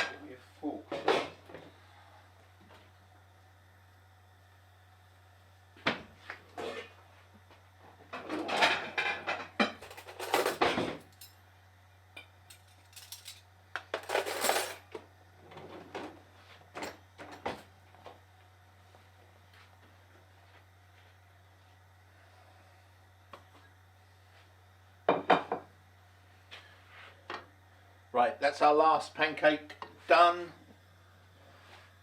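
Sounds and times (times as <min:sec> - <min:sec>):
utensil scraping a frying pan: 0:06.6 - 0:07.0.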